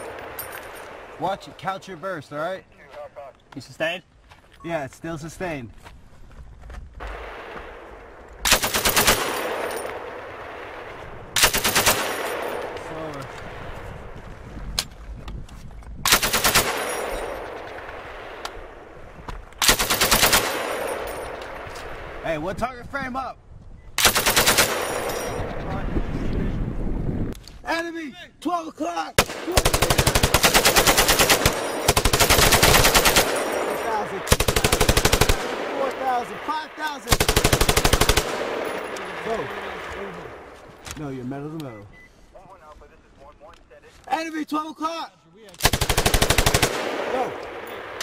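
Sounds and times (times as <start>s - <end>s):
range echo: 7.0s - 14.2s, 16.1s - 19.0s, 19.6s - 22.2s, 29.2s - 40.9s, 45.6s - 48.0s
machine gun burst: 8.5s - 9.7s, 11.4s - 12.4s, 16.1s - 17.2s, 19.6s - 20.9s, 24.0s - 25.4s, 29.5s - 35.5s, 45.6s - 46.8s.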